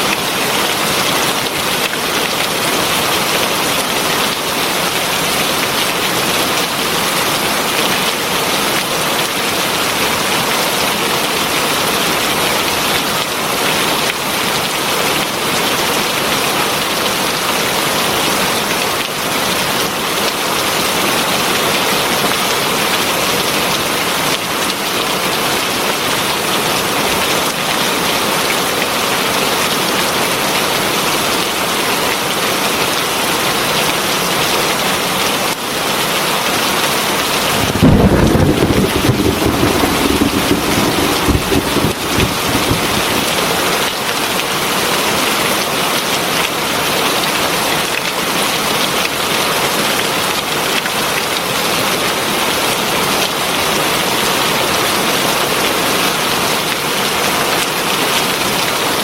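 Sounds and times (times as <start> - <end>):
heavy rain falling: 0.0 - 35.0, 35.8 - 46.4.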